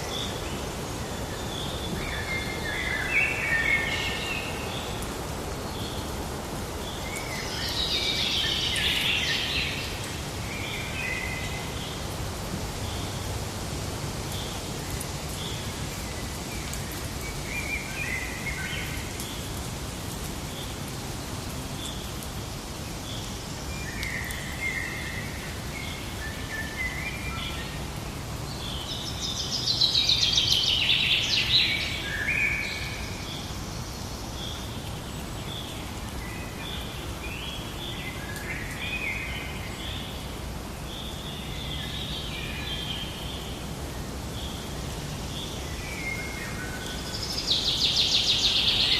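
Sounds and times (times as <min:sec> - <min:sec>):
birds calling and singing: 0:44.3 - 0:48.9.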